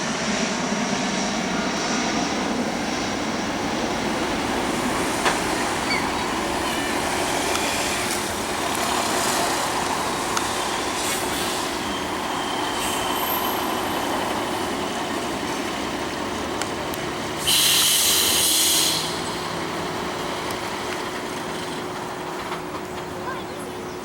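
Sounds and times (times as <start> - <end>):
jet airliner noise: 0.0 - 24.0
loud high hiss: 4.0 - 16.2, 17.2 - 20.3.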